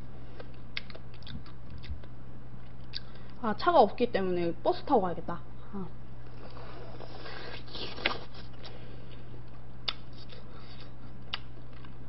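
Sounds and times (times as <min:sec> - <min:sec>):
steady low hum: 0:00.0 - 0:12.0
chewing and tearing meat: 0:00.4 - 0:03.2, 0:06.3 - 0:12.0.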